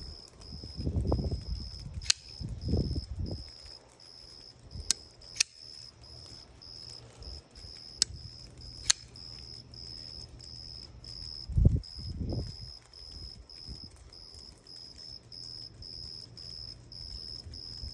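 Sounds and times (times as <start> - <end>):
insect chirping: 0.0 - 17.9
flipper knife clicks: 2.0 - 2.4, 4.8 - 5.8, 8.8 - 9.3.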